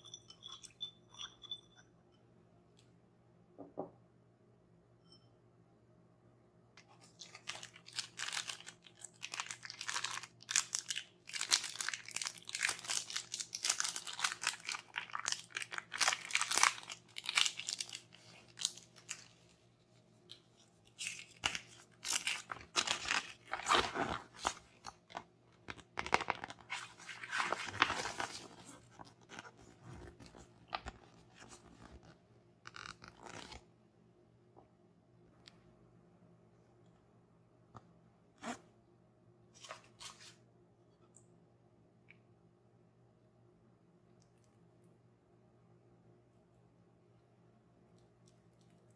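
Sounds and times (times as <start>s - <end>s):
packaging crunching and crackling: 7.2s - 19.3s, 21.0s - 30.9s.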